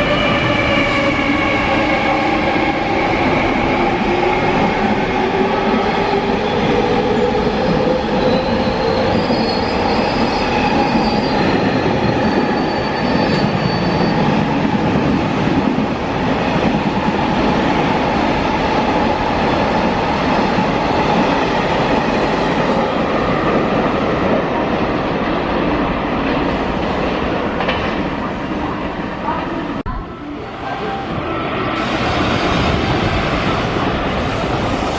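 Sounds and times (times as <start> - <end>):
train wheels on rails: 0.0 - 28.7
high-pitched wheel squeals: 8.2 - 14.4.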